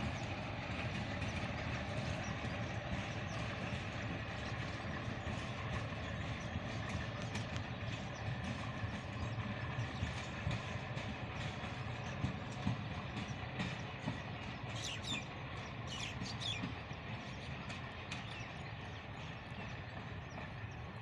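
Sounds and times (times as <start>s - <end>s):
train rumbling away: 0.0s - 21.0s
wheels clattering over rails: 0.0s - 21.0s
bird chirps: 14.7s - 16.7s.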